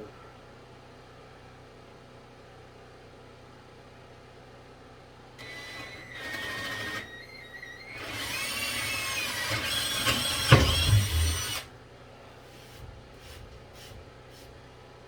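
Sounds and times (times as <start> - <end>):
power drill boring into wood: 5.4 - 11.7.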